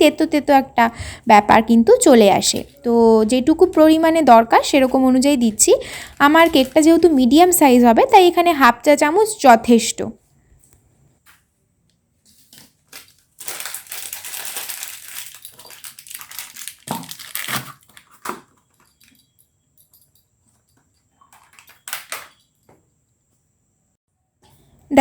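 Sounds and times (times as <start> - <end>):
crinkly rustling: 3.8 - 8.4, 12.2 - 19.3, 21.2 - 22.5.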